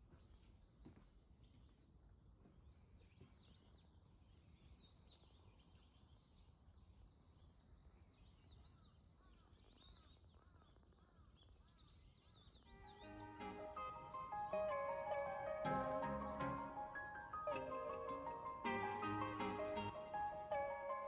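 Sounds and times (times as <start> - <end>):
birds chirping: 12.7 - 21.0
soft music: 12.7 - 21.0.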